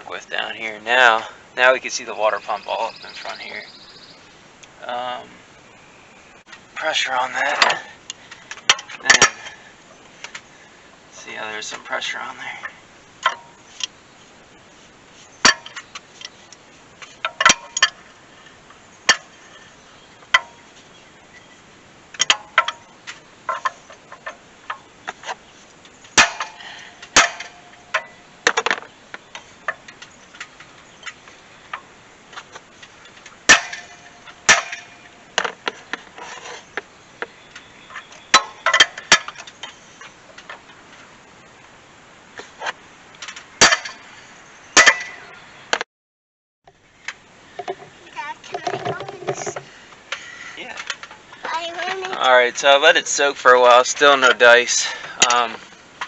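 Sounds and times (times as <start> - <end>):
hand tools clinking on metal: 7.4 - 9.6.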